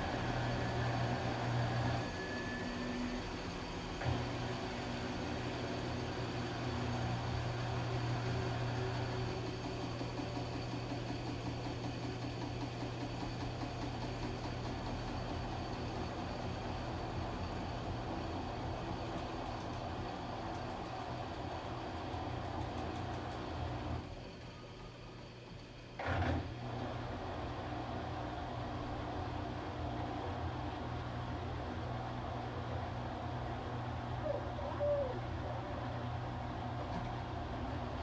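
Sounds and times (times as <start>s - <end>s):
washing machine motor hum: 0.0s - 3.8s, 36.0s - 38.0s.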